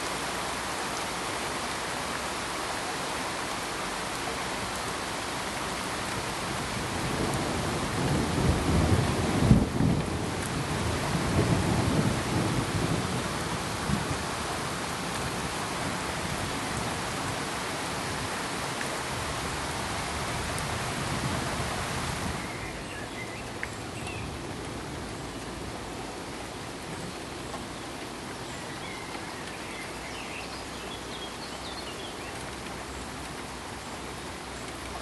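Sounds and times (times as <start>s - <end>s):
steady rain hiss: 0.0s - 35.0s
low rumble of thunder: 6.5s - 17.4s.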